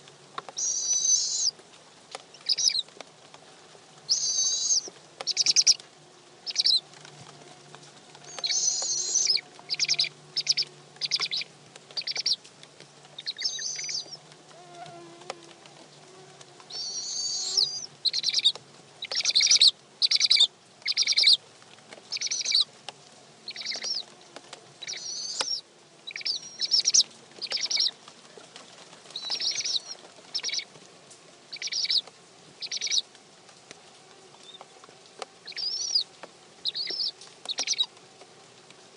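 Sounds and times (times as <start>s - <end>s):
faint steady hum: 0.0s - 38.9s
owls giving raspy calls: 0.6s - 1.5s, 4.1s - 5.8s, 8.3s - 11.4s, 13.3s - 14.2s, 16.8s - 18.5s, 24.8s - 27.9s.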